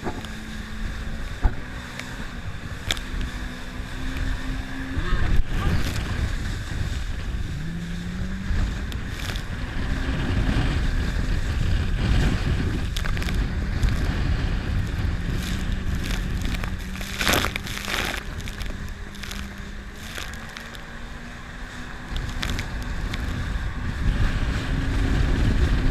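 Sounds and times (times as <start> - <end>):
jet ski engine: 0.0 - 25.9
rushing water: 0.0 - 25.9
wind on microphone: 0.0 - 25.9.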